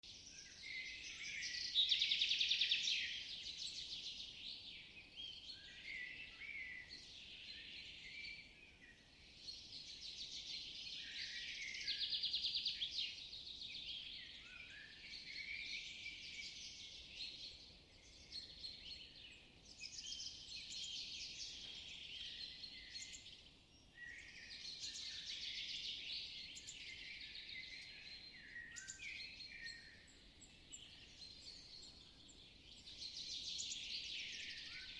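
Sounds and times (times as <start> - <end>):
birdsong with trills: 0.1 - 34.9.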